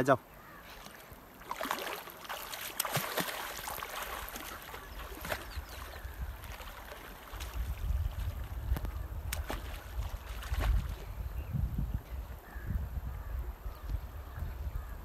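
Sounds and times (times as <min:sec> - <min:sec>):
river water splashing: 0:00.3 - 0:11.2.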